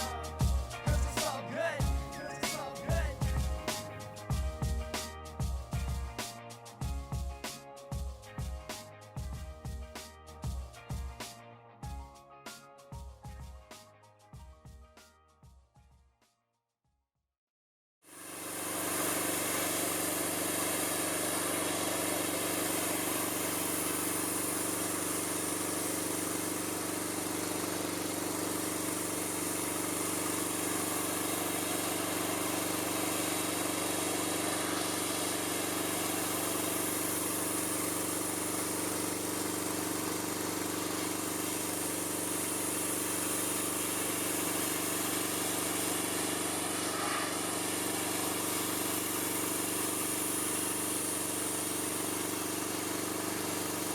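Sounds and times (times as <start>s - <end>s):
hiss of spray: 0.0s - 1.5s, 18.1s - 53.9s
pressure washer engine running: 0.0s - 6.1s, 18.1s - 53.9s.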